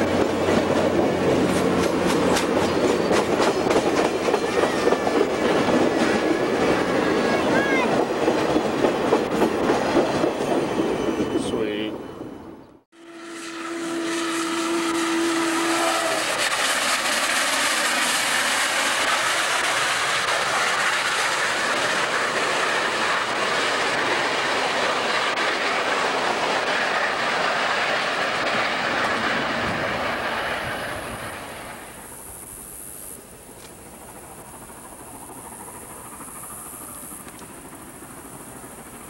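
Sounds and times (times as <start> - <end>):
train wheels clattering over rail joints: 0.0 - 6.8
locomotive whistle: 13.0 - 21.0.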